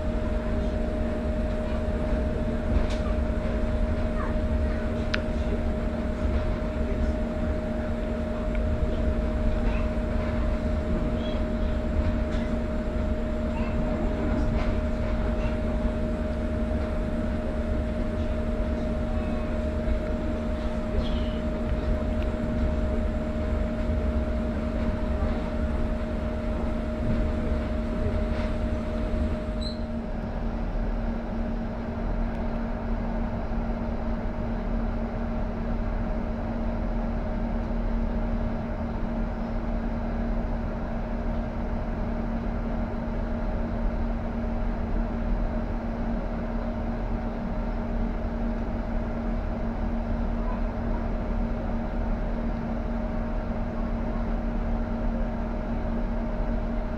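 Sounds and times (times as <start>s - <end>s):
steady hum: 0.0s - 37.4s
train rumble inside carriage: 0.0s - 56.9s.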